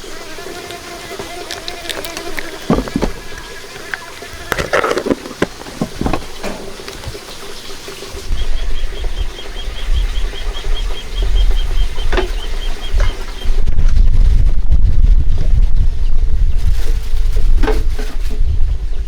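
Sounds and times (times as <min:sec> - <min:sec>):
wind buffeting the microphone: 0:04.5 - 0:19.0.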